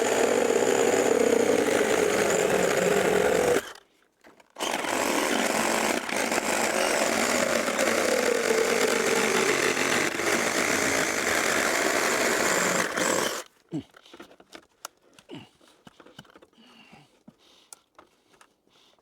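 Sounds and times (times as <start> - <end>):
chainsaw cutting timber: 0.0 - 3.8, 4.6 - 13.5.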